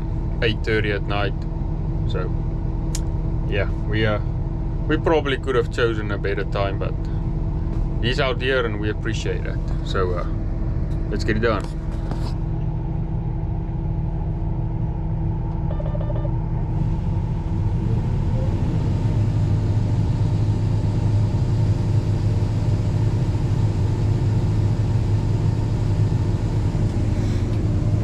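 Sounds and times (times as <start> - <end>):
short electronic beeps: 15.6 - 16.4.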